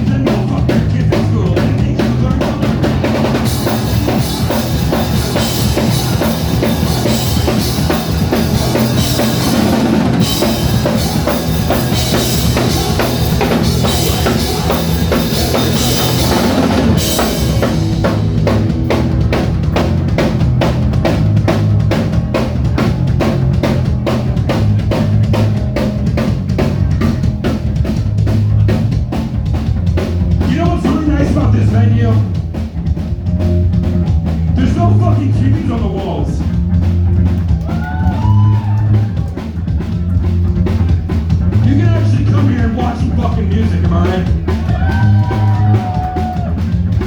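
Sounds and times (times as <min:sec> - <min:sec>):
live band playing: 0:00.0 - 0:47.0
steady drum beat: 0:00.0 - 0:47.0.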